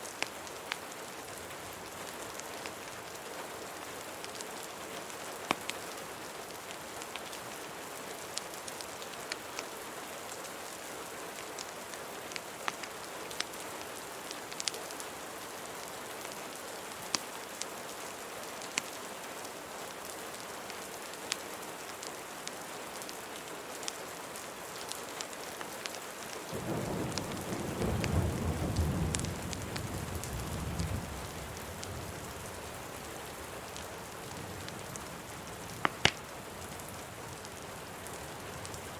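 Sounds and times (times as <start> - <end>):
rain hiss: 0.0 - 38.9
fireplace crackles: 24.8 - 38.9
thunder rumbling: 26.6 - 32.8.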